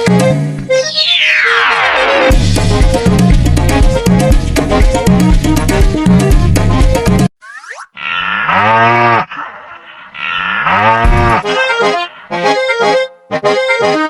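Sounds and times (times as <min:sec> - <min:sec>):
bull mooing: 0:08.0 - 0:09.4, 0:10.2 - 0:11.5
accordion music: 0:10.7 - 0:14.0.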